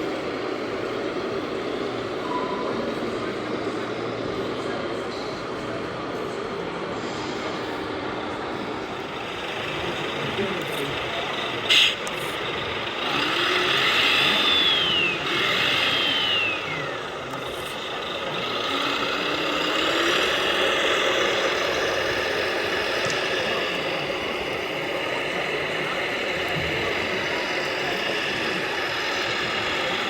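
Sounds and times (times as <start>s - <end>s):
electric motor whining: 9.0s - 30.0s.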